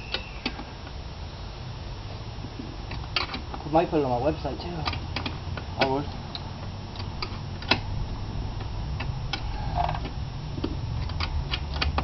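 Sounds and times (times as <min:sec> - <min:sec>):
hand tools clicking and tapping metal: 0:04.6 - 0:07.9, 0:08.6 - 0:12.0.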